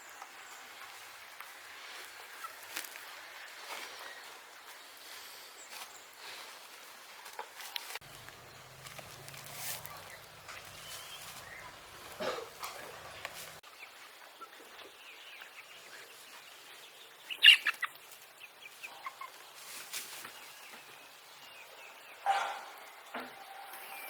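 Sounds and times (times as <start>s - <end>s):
loud bird calls: 8.0s - 13.6s, 17.2s - 18.0s, 21.6s - 24.0s.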